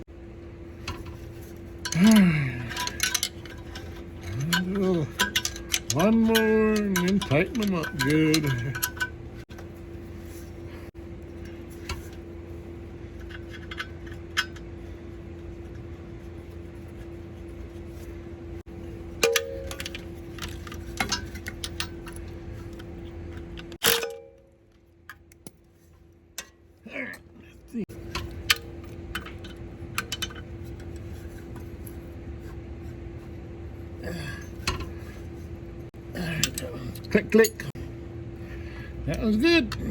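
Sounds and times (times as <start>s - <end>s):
low hum: 0.0s - 39.9s
wrench clinking against bolts: 0.9s - 9.2s, 19.2s - 25.6s, 28.0s - 32.0s, 36.2s - 37.7s.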